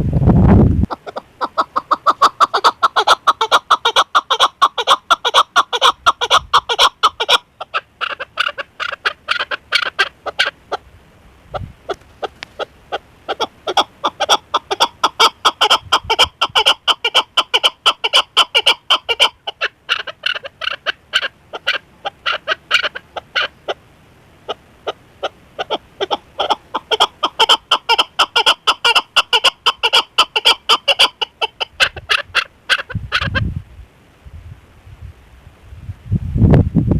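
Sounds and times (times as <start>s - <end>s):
partridge clucking: 0.9s - 10.6s.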